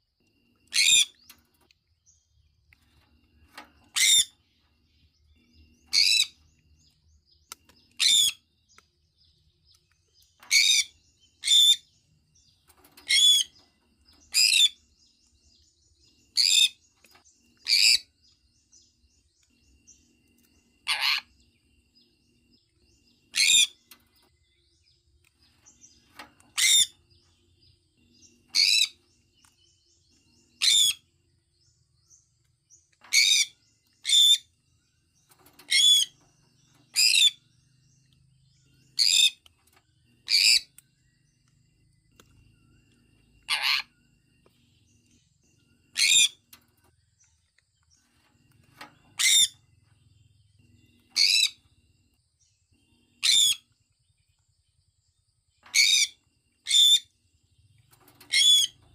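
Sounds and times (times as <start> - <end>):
parrot calling: 20.8 - 21.3, 43.5 - 43.9, 49.2 - 49.6, 53.2 - 53.6.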